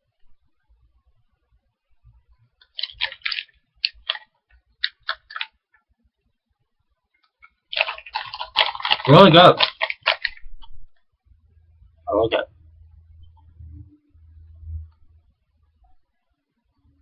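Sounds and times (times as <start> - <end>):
dense crackling noise: 1.9 - 5.7, 7.2 - 16.1
crunchy cookies being chewed: 2.6 - 5.5, 7.3 - 10.4.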